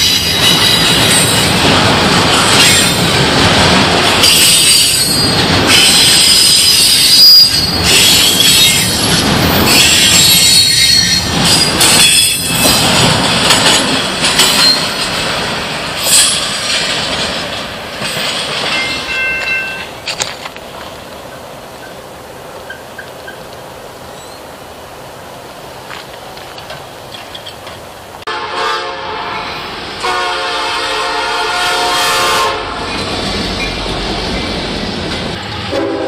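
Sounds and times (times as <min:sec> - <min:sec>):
wheels squealing against rail: 0:00.0 - 0:01.6, 0:04.2 - 0:12.9, 0:14.4 - 0:15.1, 0:16.0 - 0:16.8, 0:24.1 - 0:24.5
wheels clacking over rail joints: 0:00.0 - 0:24.4, 0:25.7 - 0:28.3
freight train rolling past: 0:00.0 - 0:36.0.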